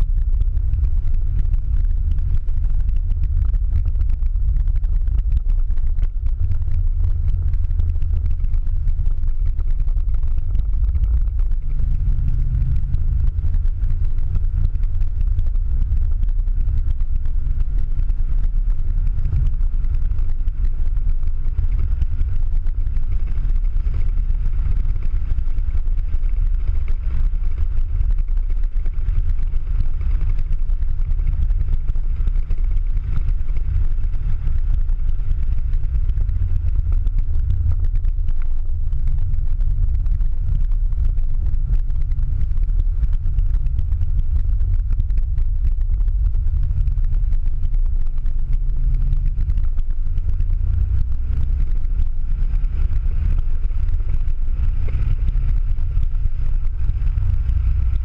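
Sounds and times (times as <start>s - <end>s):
car engine drone: 0.0s - 58.0s
road noise: 6.0s - 58.0s.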